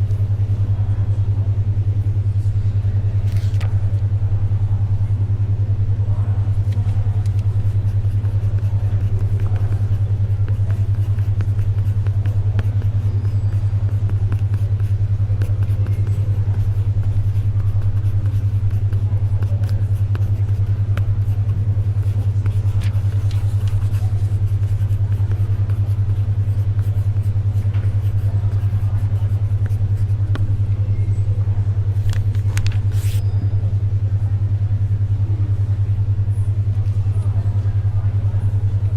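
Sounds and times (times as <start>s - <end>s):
faint library ambience: 0.0s - 38.9s
paper and pencil ticks: 6.8s - 30.4s.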